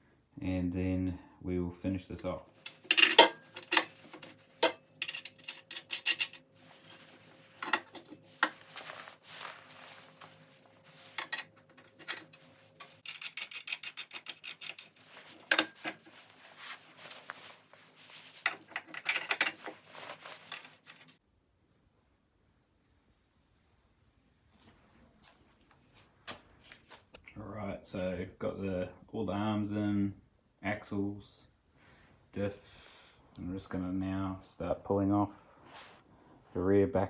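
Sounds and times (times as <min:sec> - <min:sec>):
tools clinking on steel parts: 0:02.2 - 0:09.6, 0:10.5 - 0:17.5, 0:18.2 - 0:21.2.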